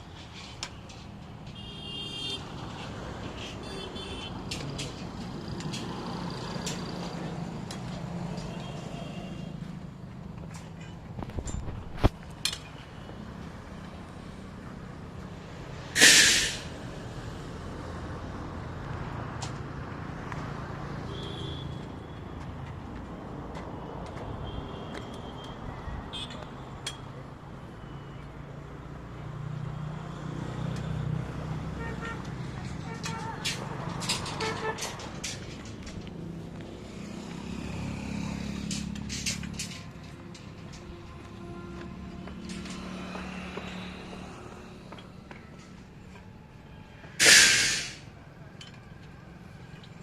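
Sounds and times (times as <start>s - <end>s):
loud hiss: 16.0s - 16.8s, 47.2s - 48.1s
sharp clicks and knocks: 32.6s - 36.7s.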